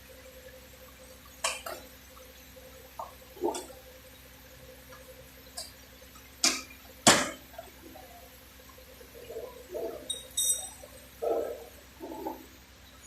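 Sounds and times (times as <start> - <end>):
ringing metallic clink: 10.1 - 10.8.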